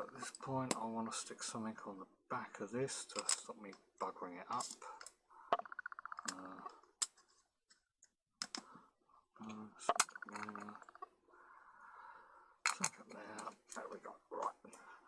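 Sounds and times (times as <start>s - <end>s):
small sharp clicks of lens parts: 7.0s - 8.7s.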